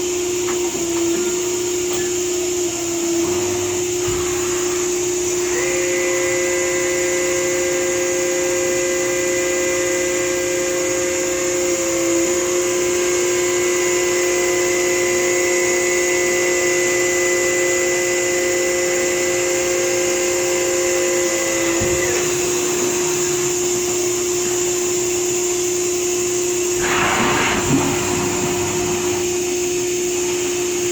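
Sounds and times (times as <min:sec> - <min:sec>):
constant machine hiss: 0:00.0 - 0:30.9
low machine hum: 0:00.0 - 0:30.9
machine whining tones: 0:00.0 - 0:30.9.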